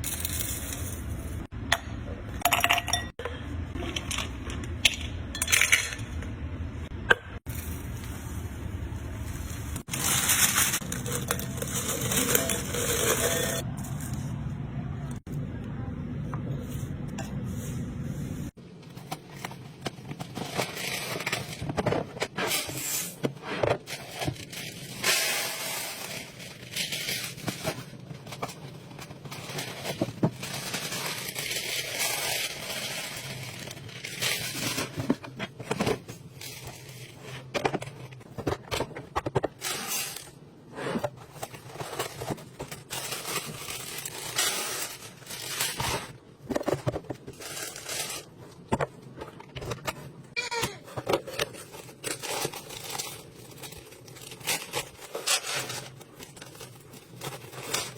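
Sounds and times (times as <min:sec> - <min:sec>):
packaging rustling and scraping: 0:09.3 - 0:14.4, 0:18.5 - 0:57.9
food packaging clicking and knocking: 0:45.8 - 0:47.8.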